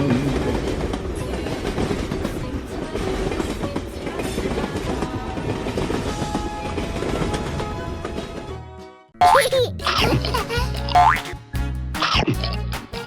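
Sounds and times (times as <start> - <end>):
train wheels clattering over rails: 0.0 - 8.5.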